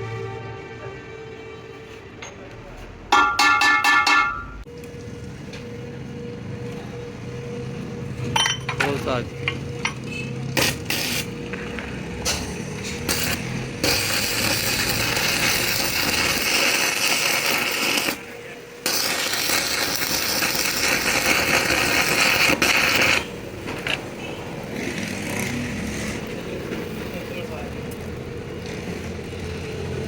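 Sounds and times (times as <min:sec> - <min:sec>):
lathe cutting metal: 0:13.1 - 0:23.3.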